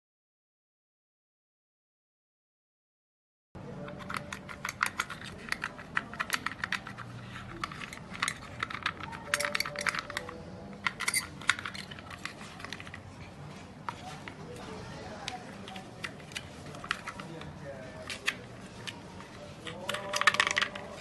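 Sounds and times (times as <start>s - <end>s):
small hard parts clicking: 3.8s - 13.2s, 15.2s - 21.0s.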